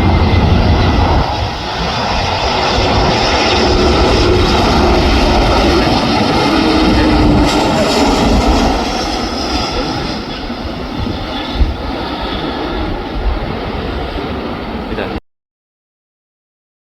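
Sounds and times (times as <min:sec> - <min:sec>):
jet engine roar: 0:00.0 - 0:15.2
wind buffeting microphone: 0:00.0 - 0:15.2.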